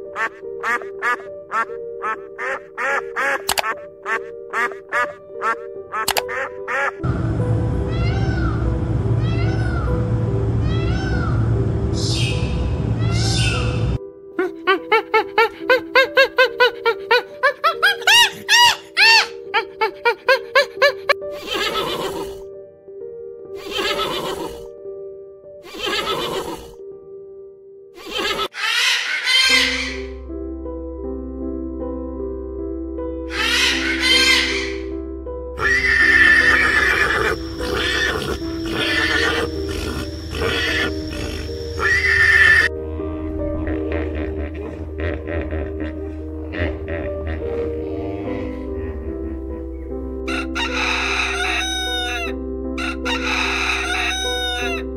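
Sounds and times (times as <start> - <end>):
background music: 0.0 - 54.9
gibbon calling: 0.1 - 7.0, 12.1 - 13.8, 14.4 - 22.2, 28.0 - 30.1, 33.3 - 34.9, 35.6 - 42.7, 46.0 - 54.9
music drone: 7.0 - 14.0, 35.6 - 53.4
harsh animal calls: 23.6 - 24.7, 25.7 - 26.8, 28.0 - 30.2, 33.3 - 34.9, 35.6 - 45.0, 45.6 - 54.9.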